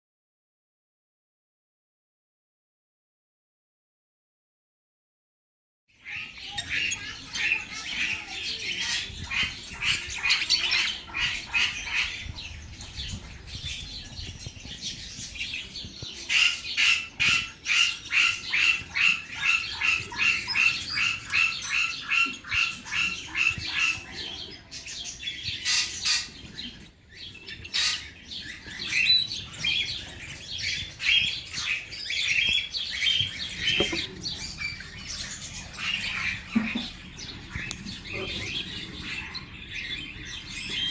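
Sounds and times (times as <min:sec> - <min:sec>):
budgerigars chattering and chirping: 0:06.0 - 0:40.9.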